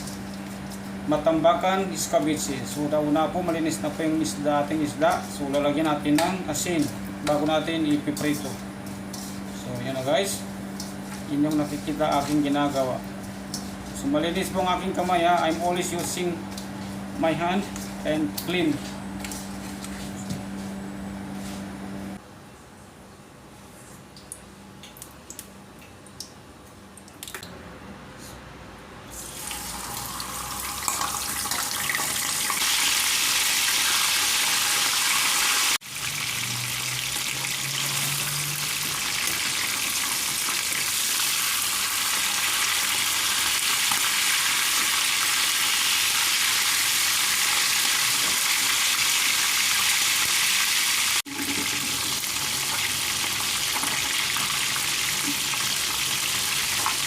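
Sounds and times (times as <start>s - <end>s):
fish sizzling in hot oil: 29.2s - 57.0s.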